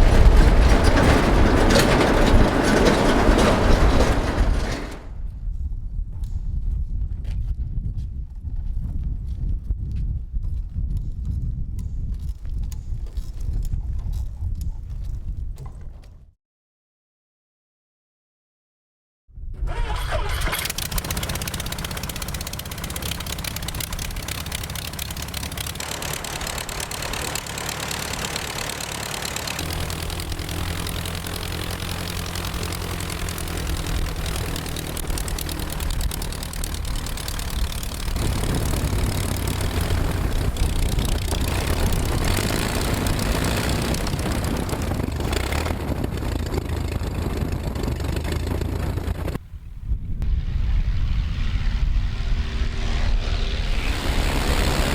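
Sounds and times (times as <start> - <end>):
aircraft piston engine and propeller: 19.6 - 54.9.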